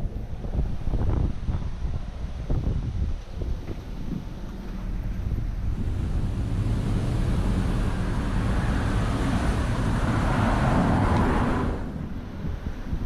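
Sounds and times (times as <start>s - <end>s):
wind rumbling on microphone: 0.0s - 13.0s
car passing close by: 4.4s - 13.0s.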